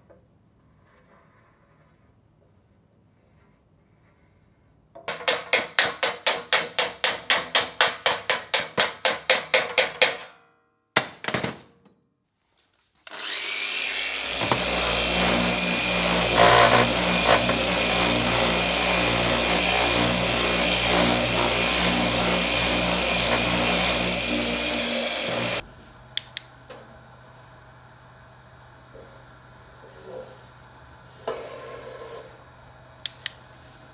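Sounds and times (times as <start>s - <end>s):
power tool running: 13.1s - 25.7s
rapid saw strokes on metal: 13.2s - 25.6s.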